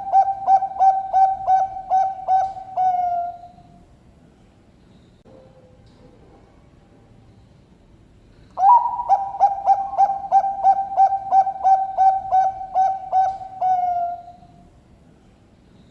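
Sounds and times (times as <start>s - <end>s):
dove singing low cooing notes: 0.0s - 3.9s, 8.6s - 14.7s.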